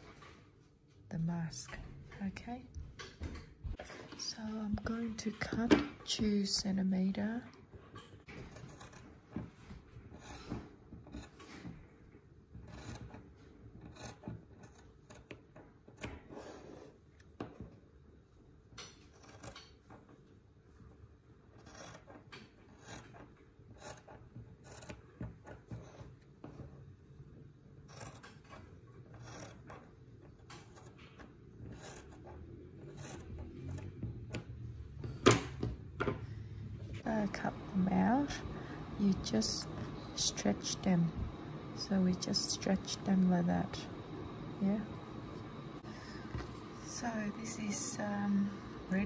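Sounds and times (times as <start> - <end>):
scissors snipping fabric: 8.3 - 11.7, 12.6 - 16.3, 18.8 - 20.0, 21.5 - 26.2, 27.8 - 34.6.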